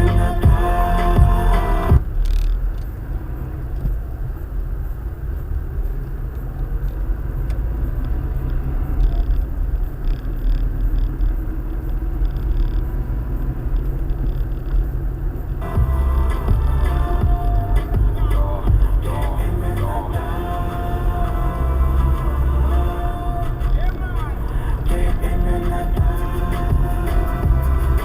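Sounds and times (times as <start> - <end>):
music: 0.0 - 2.1, 15.6 - 28.0
car road and engine rumble: 0.0 - 28.0.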